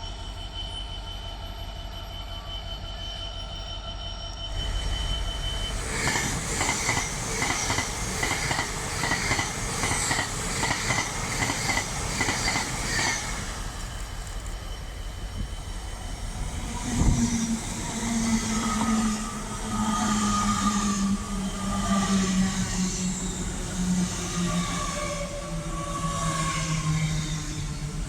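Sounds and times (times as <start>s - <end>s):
train wheels clicking over rail joints: 5.7s - 19.3s.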